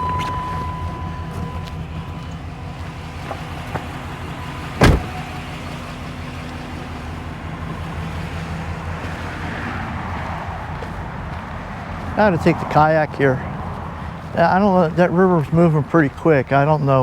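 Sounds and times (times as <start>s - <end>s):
truck engine idling: 0.0s - 17.0s
loud thump: 4.8s - 5.3s.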